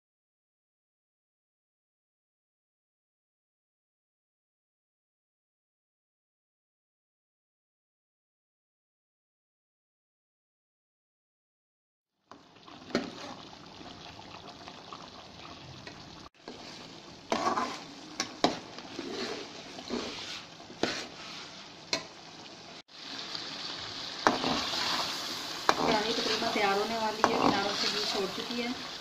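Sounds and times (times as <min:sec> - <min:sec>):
gravy sizzling in a pan: 0:12.2 - 0:29.0
metal spatula scraping a pan: 0:12.8 - 0:13.4, 0:15.8 - 0:22.2, 0:24.2 - 0:29.0.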